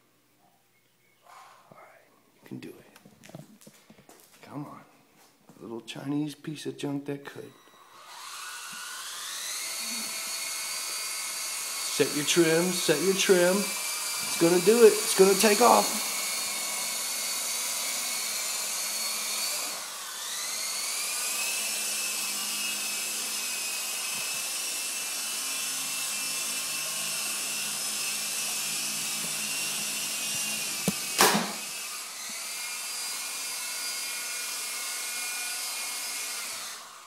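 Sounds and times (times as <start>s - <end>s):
toy helicopter motors whining: 7.4s - 37.0s
sharp knock: 30.8s - 31.6s.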